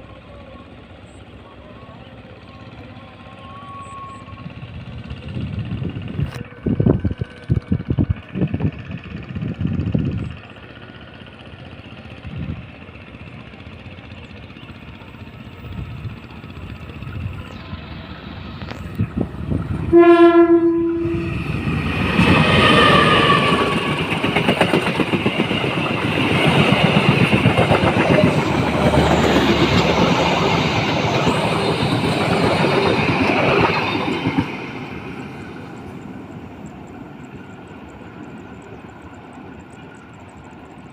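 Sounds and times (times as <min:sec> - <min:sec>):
locomotive engine noise: 0:00.0 - 0:40.9
locomotive horn blast: 0:19.7 - 0:21.6.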